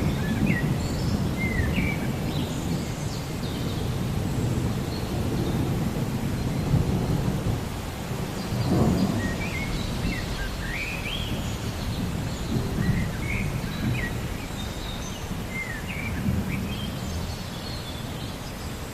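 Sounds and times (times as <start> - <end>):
birds chirping: 8.3 - 18.9.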